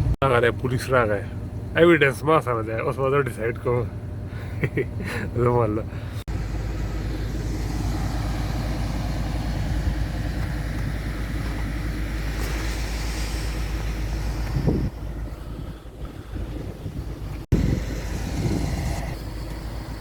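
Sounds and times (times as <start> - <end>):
car engine and road rumble: 0.0 - 20.0
wind buffeting microphone: 6.4 - 19.4.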